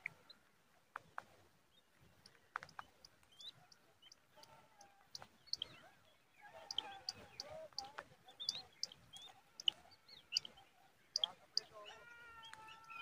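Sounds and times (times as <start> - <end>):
soft bird twittering: 1.1 - 13.0
sharp high bird chirps: 5.2 - 5.8, 6.6 - 11.9.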